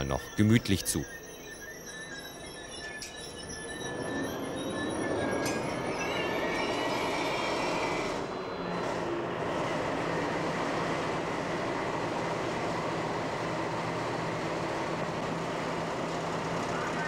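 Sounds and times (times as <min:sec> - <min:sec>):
railway wheels squealing: 0:05.0 - 0:09.1.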